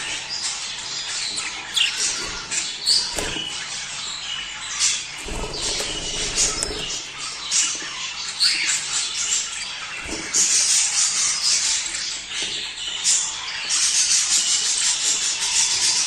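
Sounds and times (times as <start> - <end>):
budgerigars chattering: 0.0 - 12.1.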